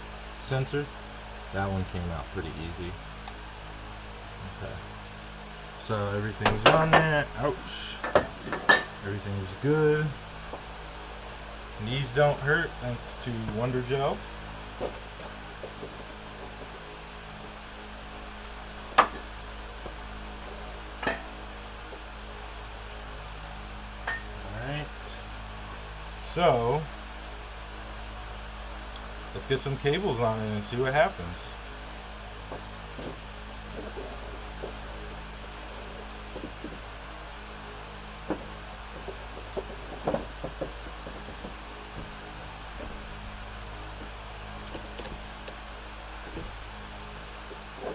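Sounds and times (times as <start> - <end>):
electrical hum: 0.0 - 47.9
hard objects knocking: 8.0 - 9.0, 38.3 - 42.1.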